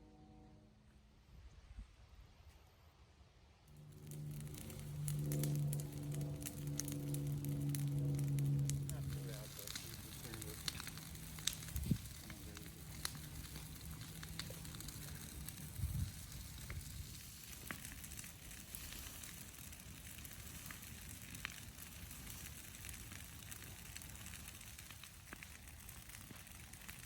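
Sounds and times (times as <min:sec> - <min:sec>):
burning branches crackling: 0:03.7 - 0:27.0
sharp pops from fire: 0:03.7 - 0:27.0.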